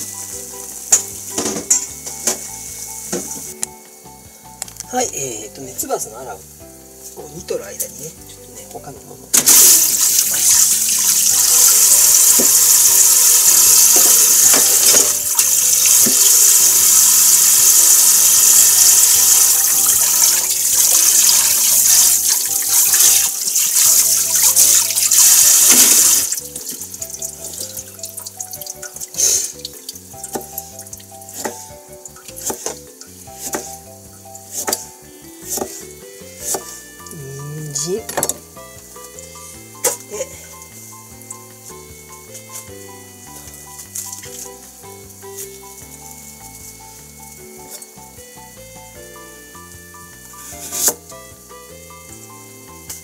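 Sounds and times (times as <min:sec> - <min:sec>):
background music: 0:00.0 - 0:53.0
knife slicing carrot on board: 0:31.3 - 0:31.7, 0:32.3 - 0:32.8, 0:33.4 - 0:33.8, 0:34.5 - 0:36.7, 0:50.6 - 0:51.0.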